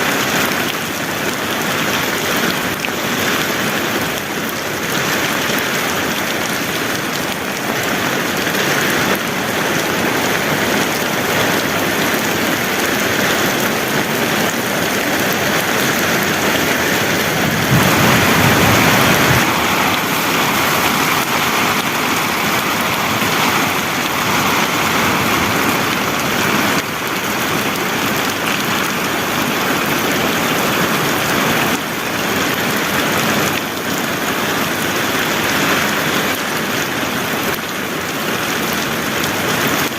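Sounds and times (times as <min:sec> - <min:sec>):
heavy rain falling: 0:00.0 - 0:39.9
low rumble: 0:16.4 - 0:21.2.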